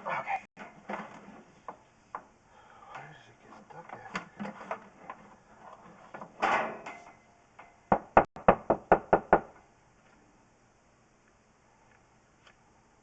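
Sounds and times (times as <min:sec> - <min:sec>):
sharp knocks: 0:07.9 - 0:09.6.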